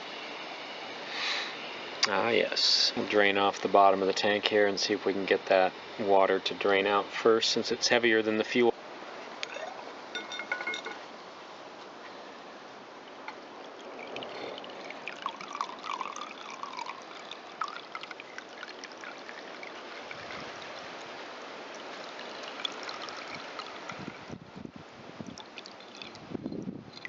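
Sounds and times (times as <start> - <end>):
gasoline trickling into glass jar: 10.1 - 11.0, 13.5 - 24.3, 25.2 - 27.0.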